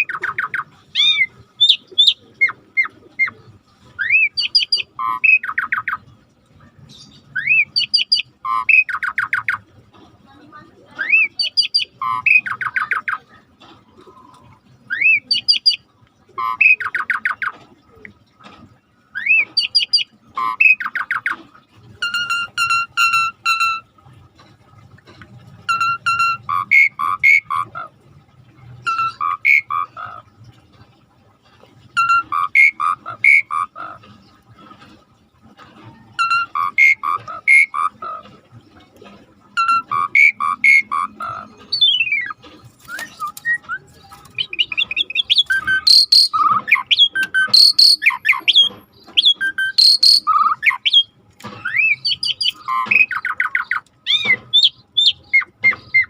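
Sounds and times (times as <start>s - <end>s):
starling singing: 0.0s - 3.4s, 4.0s - 6.0s, 6.9s - 9.6s, 11.0s - 13.2s, 14.8s - 17.5s, 19.2s - 21.4s, 25.7s - 28.0s, 28.8s - 30.3s, 32.0s - 34.4s, 36.2s - 38.2s, 39.6s - 56.0s.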